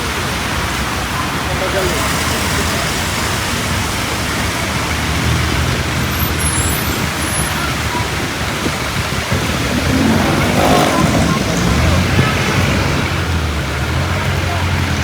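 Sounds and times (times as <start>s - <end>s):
road traffic: 0.0s - 15.0s
vehicle engine rumble: 0.1s - 15.0s.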